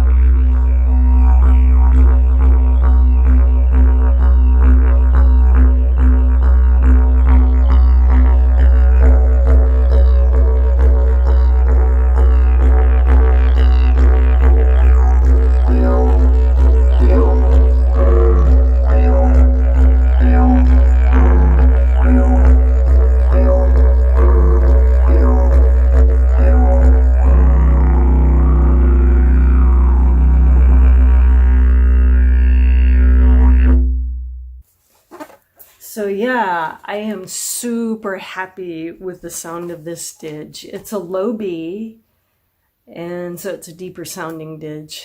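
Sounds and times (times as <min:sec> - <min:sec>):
didgeridoo drone: 0:00.0 - 0:34.6.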